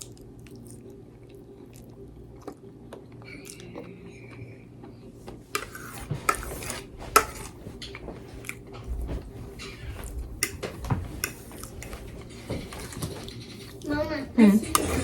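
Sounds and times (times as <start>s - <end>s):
cutlery scraping a plate: 5.6s - 8.6s, 9.6s - 13.8s, 14.6s - 15.0s.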